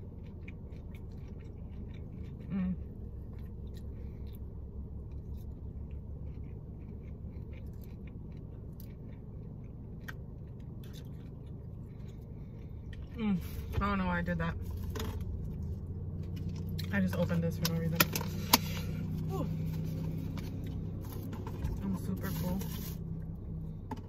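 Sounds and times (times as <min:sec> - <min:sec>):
chewing and mouth smacks: 0:00.0 - 0:13.2, 0:14.6 - 0:17.0
low hum: 0:00.0 - 0:24.0.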